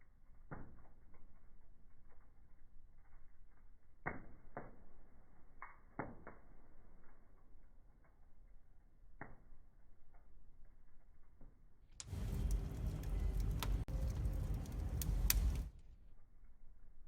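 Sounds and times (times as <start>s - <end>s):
wood fire crackling: 0.0s - 11.4s, 12.0s - 17.0s
sharp pops of burning wood: 4.0s - 6.7s, 12.0s - 15.7s.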